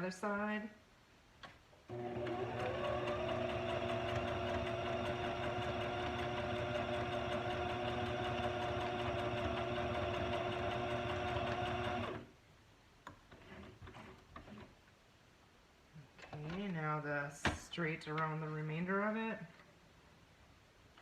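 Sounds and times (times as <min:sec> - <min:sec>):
sewing machine running: 0:01.9 - 0:12.3.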